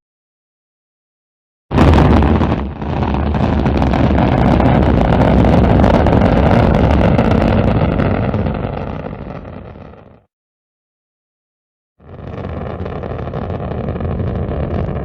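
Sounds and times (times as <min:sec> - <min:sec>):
rocket engines roaring: 0:12.2 - 0:15.0.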